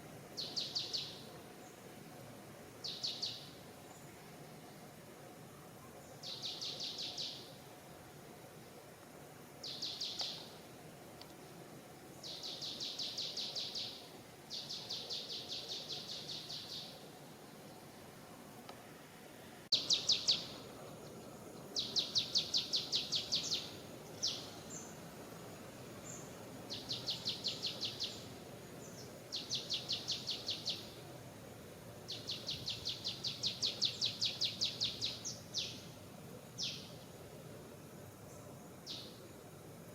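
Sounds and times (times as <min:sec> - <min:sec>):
faint outdoor background noise: 0:00.0 - 0:39.9
bird calling in rapid trills: 0:19.8 - 0:20.6, 0:21.8 - 0:24.9.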